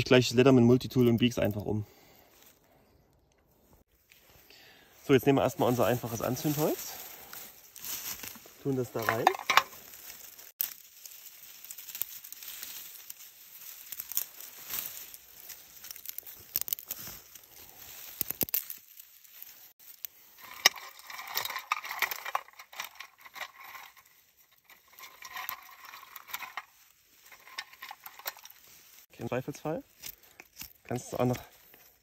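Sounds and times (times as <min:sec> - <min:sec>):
rustling handling: 0:05.1 - 0:32.0
sticks clattering against metal: 0:08.0 - 0:10.8, 0:20.3 - 0:28.6.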